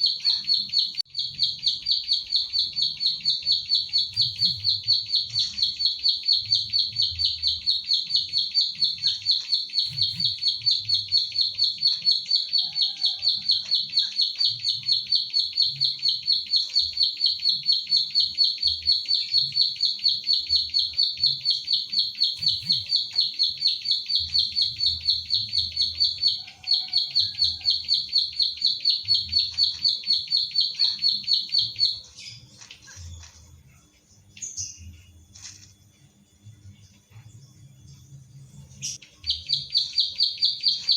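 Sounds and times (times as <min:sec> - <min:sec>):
bird clicking song: 0:00.0 - 0:33.5, 0:38.9 - 0:40.9.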